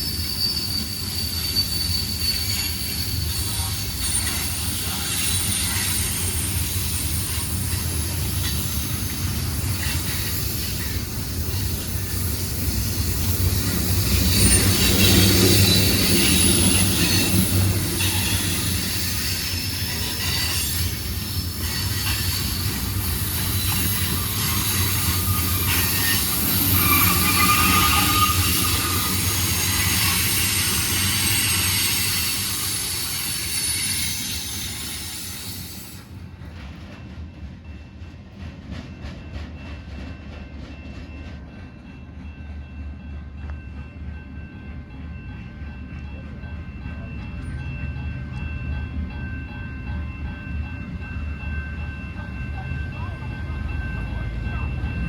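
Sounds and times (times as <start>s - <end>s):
high-pitched wheel squeal: 0.0s - 7.5s, 14.2s - 35.9s.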